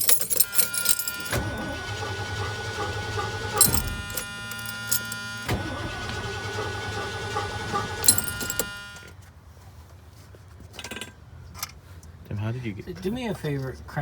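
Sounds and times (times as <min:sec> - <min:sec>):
truck engine cranking: 0:00.0 - 0:09.0.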